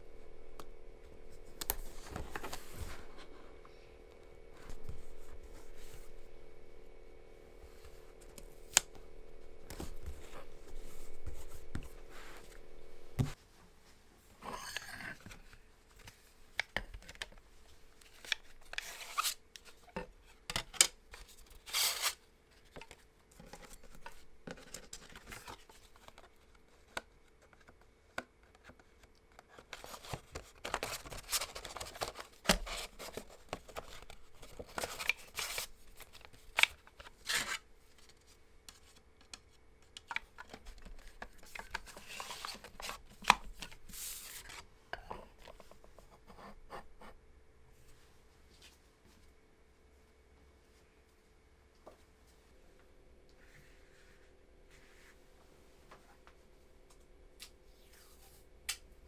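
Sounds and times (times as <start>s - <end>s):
steady low hum: 0.0s - 13.5s
rustling and scraping: 1.1s - 6.9s, 7.5s - 16.3s.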